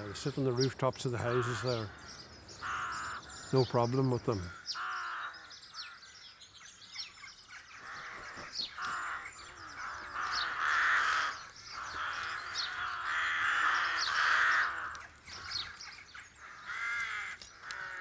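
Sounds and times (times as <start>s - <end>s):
rooks cawing: 0.0s - 6.2s, 7.5s - 18.0s
thin high bird calls: 0.0s - 18.0s.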